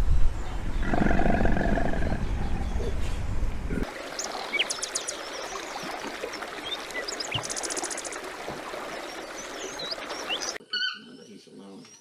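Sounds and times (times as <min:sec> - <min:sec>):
big cat roaring: 0:00.8 - 0:02.9.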